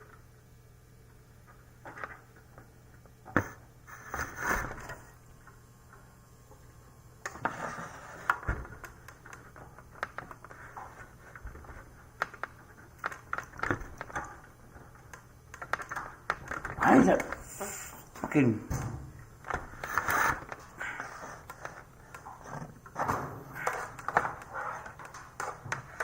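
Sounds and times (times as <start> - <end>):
rustling and scraping: 3.4 - 5.1.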